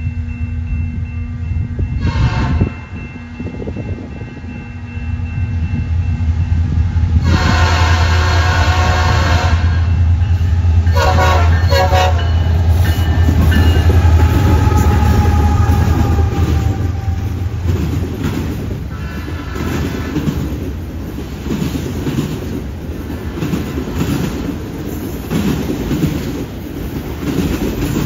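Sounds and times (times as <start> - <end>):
diesel locomotive engines rumbling: 0.0 - 28.0
train horn blasts: 2.0 - 3.0, 7.2 - 10.0, 10.8 - 17.4, 18.9 - 20.2.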